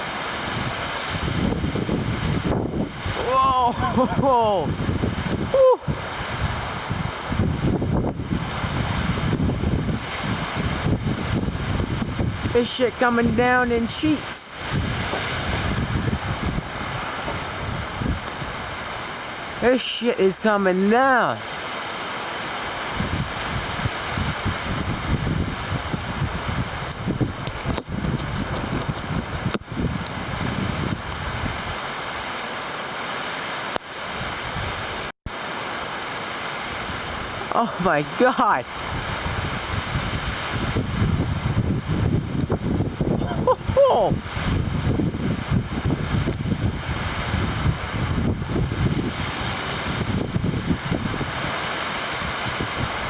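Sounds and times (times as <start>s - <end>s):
heavy rain pouring: 0.0s - 53.0s
wind buffeting microphone: 0.4s - 13.9s, 14.6s - 19.6s, 22.8s - 32.2s, 38.7s - 53.0s.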